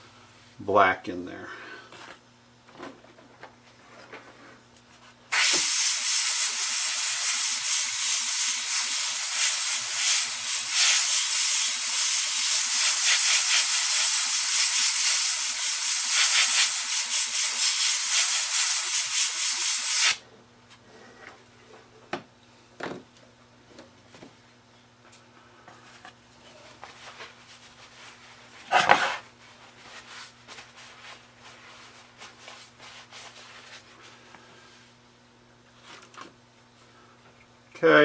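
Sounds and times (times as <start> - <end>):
pressurised air hissing from nozzle: 5.3 - 20.2.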